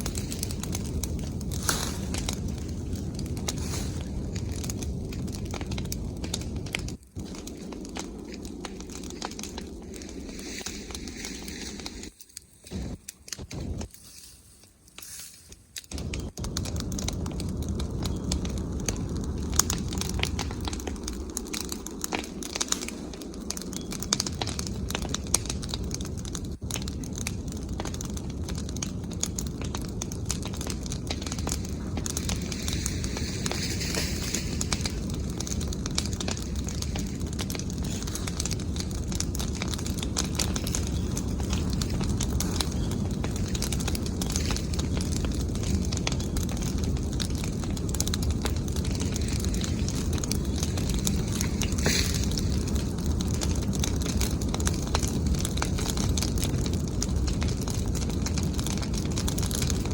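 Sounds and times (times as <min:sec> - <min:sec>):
bonfire crackling: 0:00.0 - 0:59.9
rush of flame: 0:00.0 - 0:59.9.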